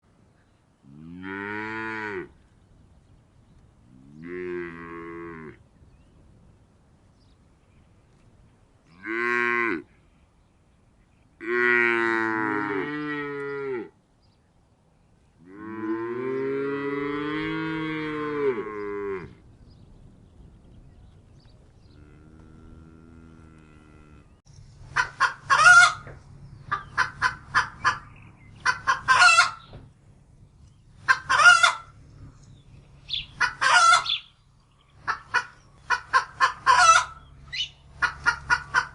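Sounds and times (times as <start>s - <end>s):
cattle mooing: 15.4s - 19.4s, 21.9s - 24.4s
chickens clucking: 24.8s - 29.8s, 31.0s - 32.0s, 33.1s - 34.3s, 35.0s - 38.9s.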